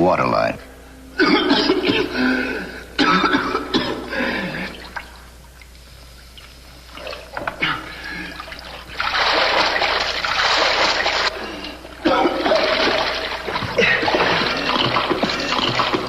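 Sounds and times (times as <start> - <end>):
water splashing and sloshing: 4.6 - 16.0.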